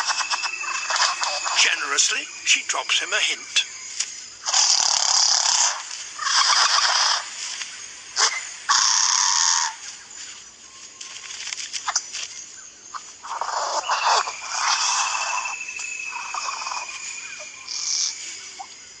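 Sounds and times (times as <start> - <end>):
bird clicks and scratchy notes: 0.0 - 2.1, 3.9 - 9.0, 10.8 - 12.4, 13.0 - 18.8
bird harsh rasping calls: 0.0 - 7.5, 8.1 - 9.9, 12.9 - 18.7.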